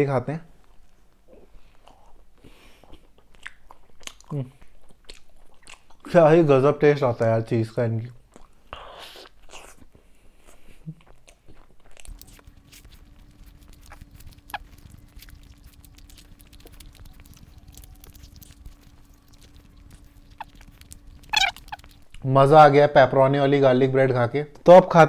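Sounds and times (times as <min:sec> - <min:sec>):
faint steady hum: 0:00.0 - 0:25.0
chewing and crunching bread: 0:00.6 - 0:06.4, 0:08.0 - 0:22.7
mouth clicks: 0:11.0 - 0:22.2.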